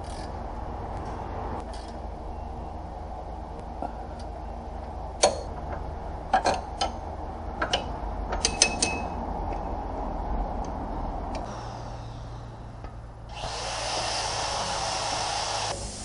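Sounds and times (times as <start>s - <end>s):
low hum: 0.0s - 14.1s
metal parts clicking and knocking: 7.6s - 9.2s.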